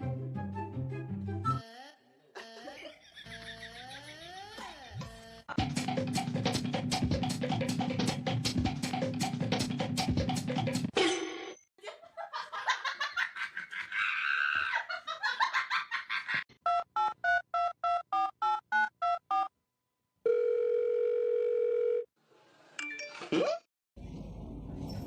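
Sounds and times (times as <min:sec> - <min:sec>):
steady phone tone: 0:20.3 - 0:22.1.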